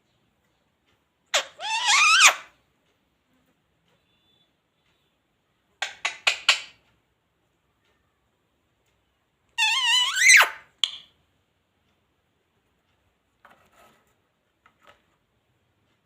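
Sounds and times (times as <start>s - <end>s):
parrot chirping sharply: 1.3s - 2.5s, 9.6s - 10.6s
parrot calling: 1.3s - 2.6s, 9.6s - 10.7s.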